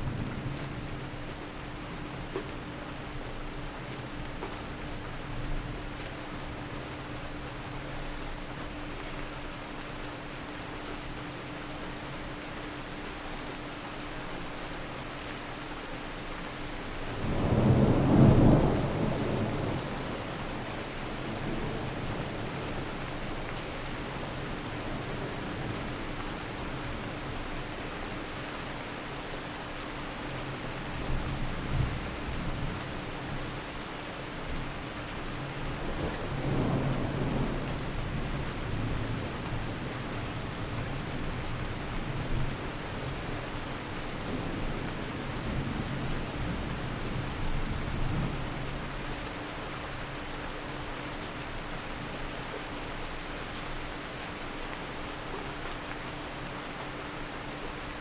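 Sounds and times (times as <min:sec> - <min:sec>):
steady rain hiss: 0:00.0 - 0:58.0
low thunder rumble: 0:17.1 - 0:22.9, 0:35.8 - 0:43.4.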